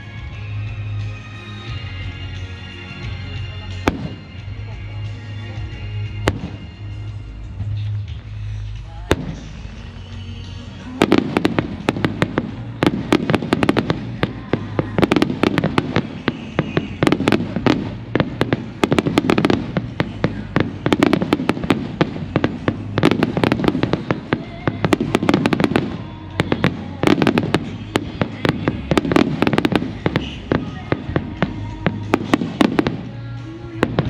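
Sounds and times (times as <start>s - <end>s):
fireworks crackling and popping: 2.4s - 34.0s
deep firework booms: 11.0s - 33.1s.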